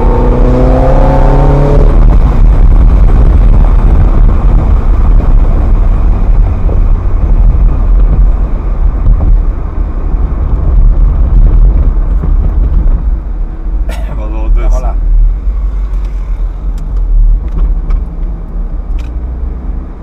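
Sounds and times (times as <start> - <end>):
car engine low rumble: 0.0 - 20.0
road noise: 0.0 - 20.0.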